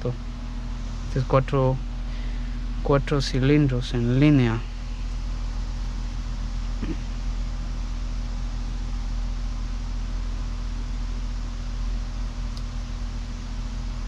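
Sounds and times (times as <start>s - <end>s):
low mechanical hum: 0.0s - 14.0s
faint click: 12.5s - 12.7s.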